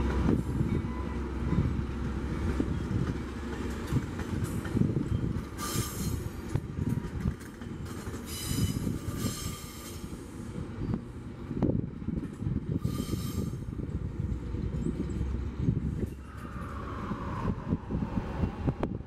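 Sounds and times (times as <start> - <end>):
train knocks: 0.0 - 10.1
train rumbling on rails: 0.0 - 19.0
high-pitched wheel squeal: 16.1 - 18.7.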